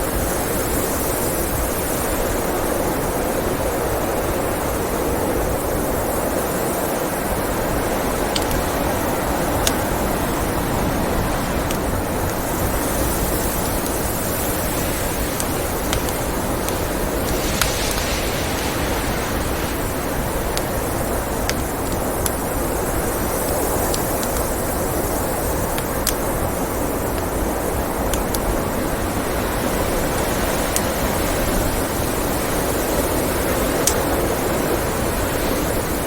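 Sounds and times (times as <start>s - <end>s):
blizzard wind: 0.0s - 36.0s
wood fire crackling and popping: 6.9s - 34.8s.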